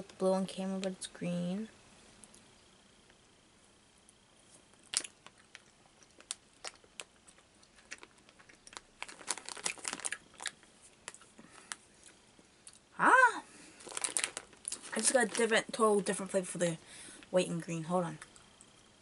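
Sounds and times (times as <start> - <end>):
plastic candy bag crinkling: 4.7 - 11.8, 13.6 - 16.5
chewing gummy candy: 4.7 - 12.9, 13.7 - 15.6.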